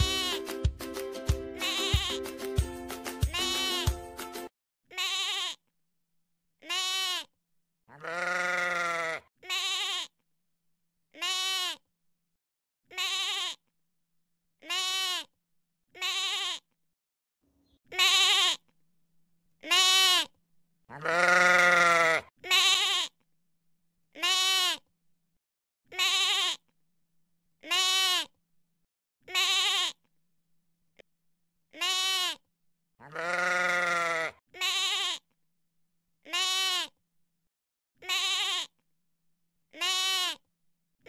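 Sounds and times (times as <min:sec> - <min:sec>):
sheep bleating: 0:00.0 - 0:00.4, 0:01.6 - 0:02.2, 0:03.3 - 0:04.0, 0:04.9 - 0:05.6, 0:06.6 - 0:07.3, 0:07.9 - 0:10.1, 0:11.2 - 0:11.8, 0:12.9 - 0:13.6, 0:14.6 - 0:15.3, 0:15.9 - 0:16.7, 0:17.9 - 0:18.6, 0:19.6 - 0:20.3, 0:20.9 - 0:23.1, 0:24.2 - 0:24.8, 0:25.9 - 0:26.6, 0:27.6 - 0:28.3, 0:29.2 - 0:30.0, 0:31.7 - 0:32.4, 0:33.0 - 0:35.2, 0:36.2 - 0:37.0, 0:38.0 - 0:38.7, 0:39.7 - 0:40.4.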